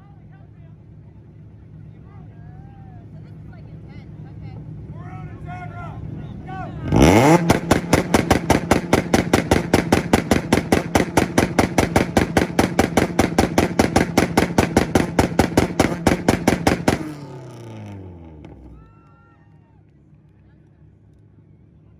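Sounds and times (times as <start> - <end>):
car engine on rev limiter: 6.8 - 18.8
exhaust bangs and pops: 6.9 - 18.9.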